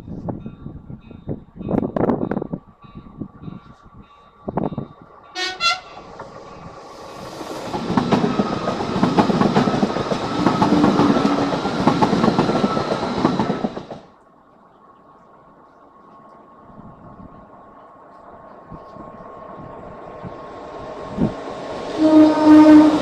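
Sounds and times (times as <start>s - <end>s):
train horn blast: 5.3s - 6.1s, 21.9s - 23.0s
train wheels clacking over rails: 5.4s - 14.1s.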